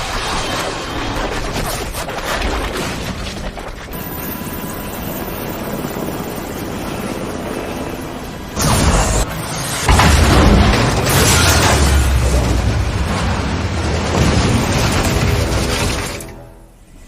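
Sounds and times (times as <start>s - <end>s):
helicopter rotor and engine: 3.9s - 10.0s
music: 14.2s - 17.0s.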